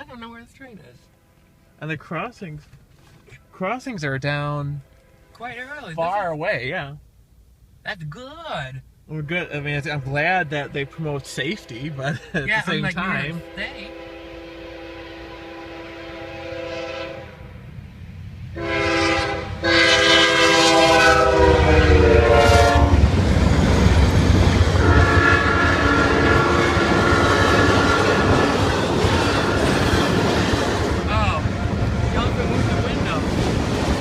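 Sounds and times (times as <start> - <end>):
train rumble: 8.0 - 34.0
locomotive horn blasts: 9.8 - 17.6, 18.6 - 23.1, 24.8 - 29.7, 31.3 - 33.2.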